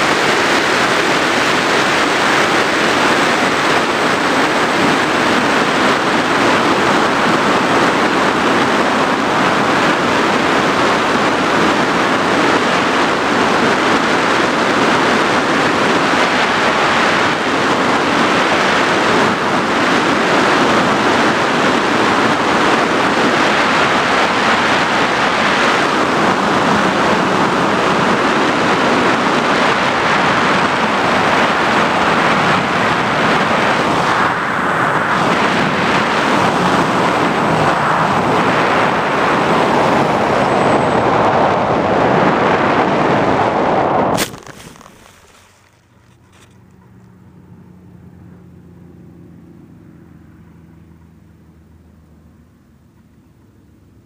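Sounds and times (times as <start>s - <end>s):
drone airflow rushing: 0.0s - 24.0s, 41.8s - 46.2s.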